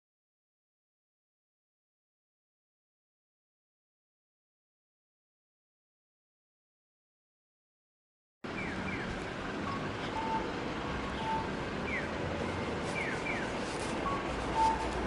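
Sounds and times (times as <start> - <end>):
low outdoor rumble and hiss: 8.5 - 15.0
birds chirping and whistling: 8.6 - 15.0.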